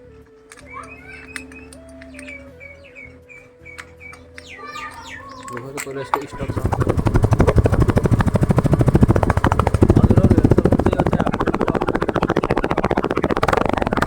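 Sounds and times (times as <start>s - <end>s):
motorcycle exhaust putter: 3.7s - 14.0s.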